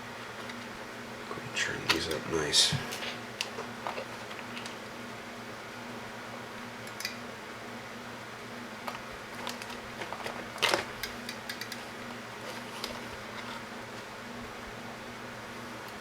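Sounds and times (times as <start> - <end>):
low electrical hum: 0.0 - 16.0
clicks and knocks of small parts: 8.9 - 11.8.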